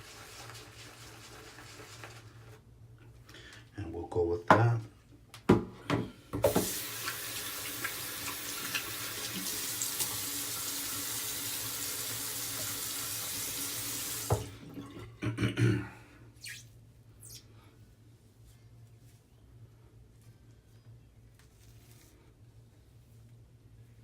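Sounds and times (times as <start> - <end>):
tap water running into sink: 6.4 - 15.0.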